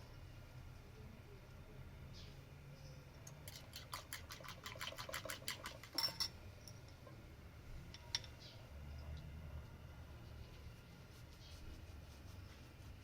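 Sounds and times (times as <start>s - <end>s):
utensil clinking against dish: 3.4s - 7.2s.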